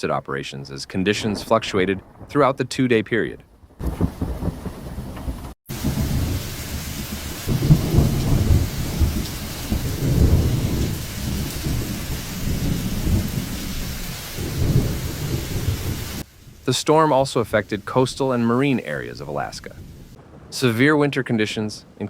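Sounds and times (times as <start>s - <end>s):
storm rushing hiss: 3.8s - 21.2s.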